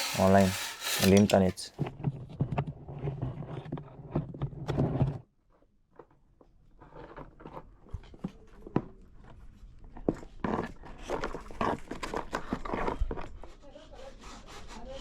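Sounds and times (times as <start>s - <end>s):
rubbing scraping noise: 0.0s - 1.6s
short rasping strokes: 0.0s - 1.6s.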